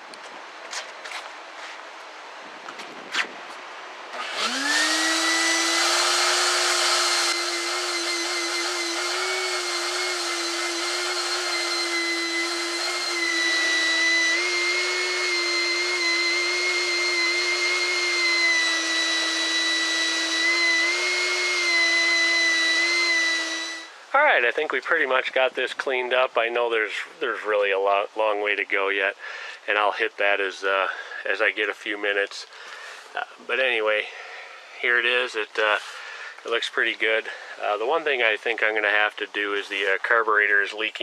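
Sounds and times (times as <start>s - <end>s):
vacuum cleaner motor whining: 4.2s - 23.9s.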